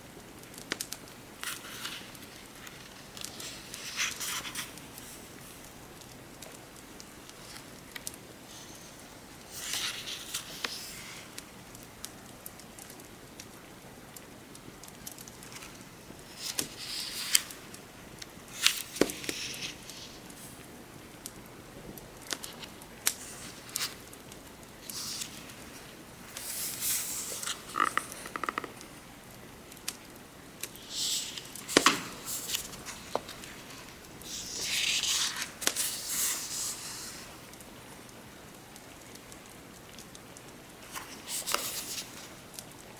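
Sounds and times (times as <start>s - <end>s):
wood fire crackling: 0.0s - 42.9s
rain hiss: 0.4s - 13.8s, 14.6s - 42.9s
book pages turning: 0.5s - 11.4s, 15.0s - 20.6s, 22.2s - 29.0s, 30.6s - 37.4s, 40.8s - 42.7s.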